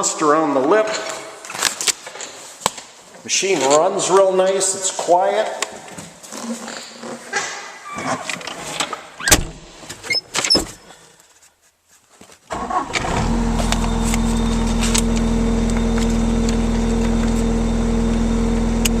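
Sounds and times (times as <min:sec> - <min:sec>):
diesel engine cranking and idling: 0:12.5 - 0:19.0.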